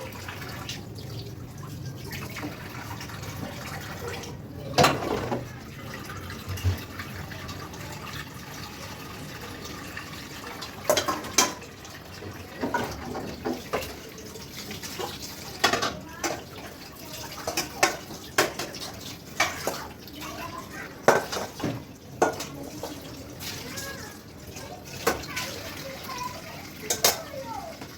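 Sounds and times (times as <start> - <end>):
tap water running into sink: 0.0 - 27.9
clinks and knocks at sink: 4.8 - 5.6, 10.8 - 11.7, 12.6 - 14.0, 15.0 - 16.5, 17.4 - 19.9, 21.0 - 23.1, 26.8 - 27.9.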